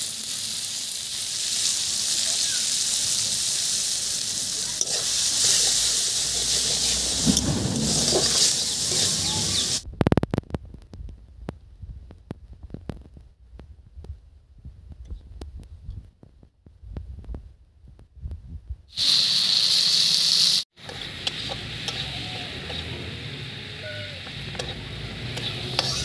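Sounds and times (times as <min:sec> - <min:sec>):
tomato slices sizzling in oil: 0:00.0 - 0:09.8, 0:18.9 - 0:26.0
faint ticks and low thumps: 0:09.8 - 0:18.9.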